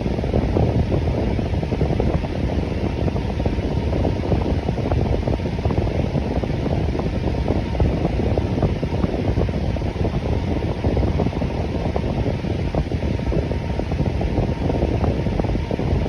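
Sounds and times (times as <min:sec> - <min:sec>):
electric fan running: 0:00.0 - 0:16.0.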